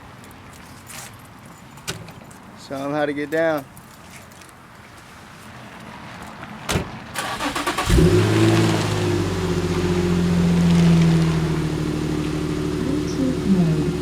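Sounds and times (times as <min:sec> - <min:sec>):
ignition click: 0:07.2 - 0:08.2
car engine starting and idling: 0:07.2 - 0:14.0.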